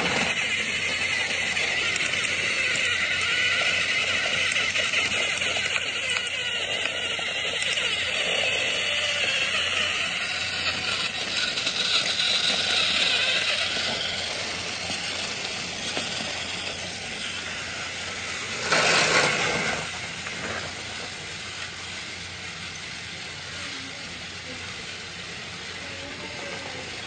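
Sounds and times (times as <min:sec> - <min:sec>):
train rushing noise: 0:00.0 - 0:27.0
burst of hiss: 0:17.2 - 0:26.9.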